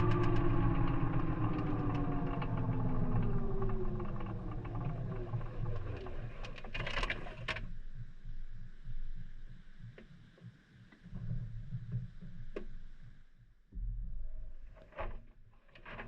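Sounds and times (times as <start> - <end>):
washing machine drum winding down: 0.0 - 6.1
light clicks and rattles: 0.0 - 7.8, 14.7 - 16.0.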